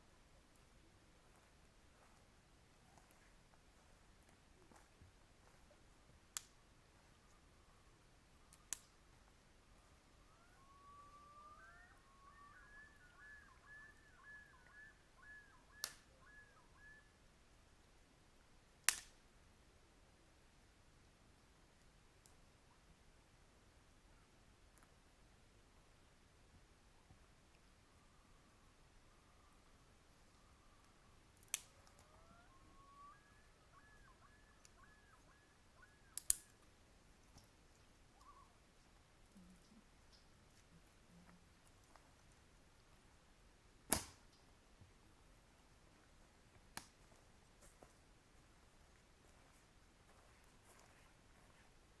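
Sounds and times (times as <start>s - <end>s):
distant bird calling: 5.4s - 17.4s, 27.5s - 41.4s
sharp clicks: 15.6s - 16.4s, 30.8s - 38.3s, 43.9s - 44.4s.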